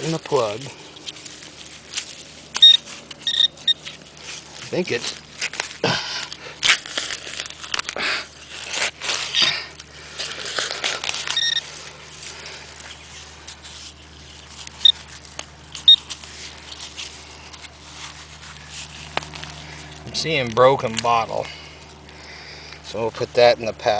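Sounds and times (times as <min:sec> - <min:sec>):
metal detector beeps: 0:02.6 - 0:03.9, 0:11.4 - 0:11.7, 0:15.8 - 0:16.0.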